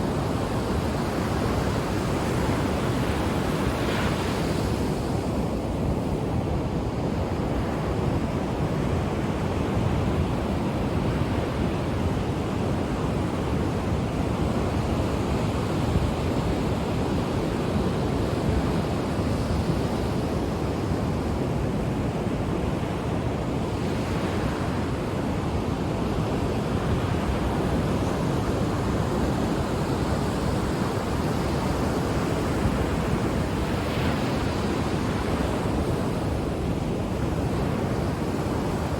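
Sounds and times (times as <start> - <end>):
waves breaking on shore: 0.0 - 38.9
wind rumble on microphone: 0.0 - 38.9.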